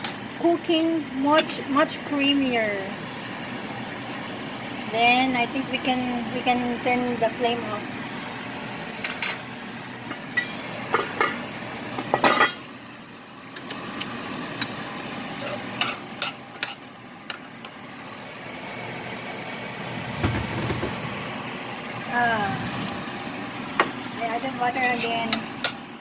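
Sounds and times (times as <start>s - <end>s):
food sizzling in a pan: 0.0s - 26.0s
metal spoon scraping a pan: 15.4s - 17.4s, 24.7s - 25.8s.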